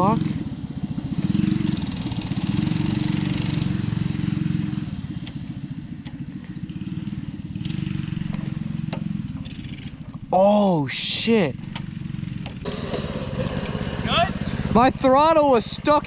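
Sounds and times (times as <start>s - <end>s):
small engine at high revs: 1.2s - 5.0s, 11.9s - 16.0s.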